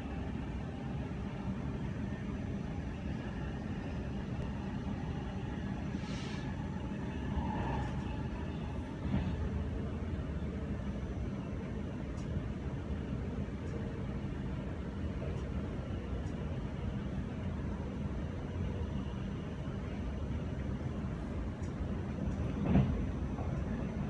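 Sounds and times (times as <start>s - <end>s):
train rumbling inside carriage: 0.0s - 24.0s
brief hiss: 5.9s - 6.5s.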